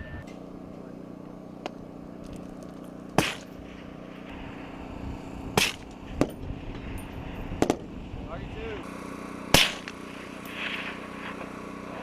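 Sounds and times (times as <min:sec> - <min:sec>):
steady low drone: 0:00.0 - 0:12.0
sharp gunshots with echo: 0:03.2 - 0:03.7, 0:05.5 - 0:06.4, 0:09.5 - 0:10.1.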